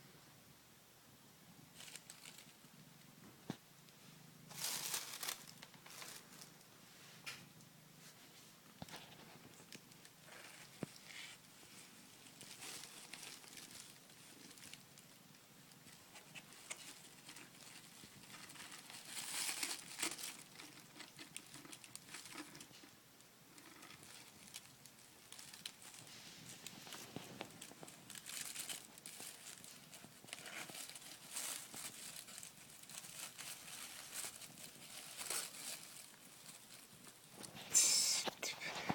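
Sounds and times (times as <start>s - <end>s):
kitten rustling in cardboard box: 4.5s - 6.6s, 15.9s - 22.8s, 25.3s - 37.8s.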